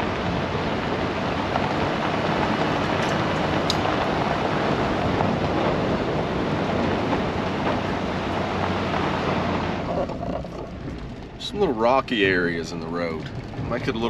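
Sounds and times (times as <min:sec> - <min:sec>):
truck engine: 0:00.0 - 0:14.0
tyres rumbling on dirt road: 0:00.0 - 0:14.0.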